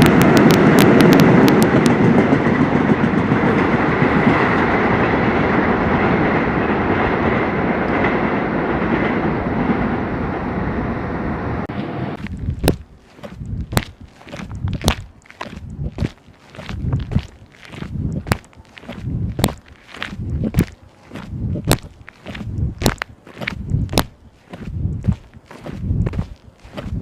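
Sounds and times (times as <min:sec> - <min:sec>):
sharp wheel clicks: 0:00.0 - 0:02.0
subway train rumble: 0:00.0 - 0:12.2
footsteps: 0:12.1 - 0:27.0.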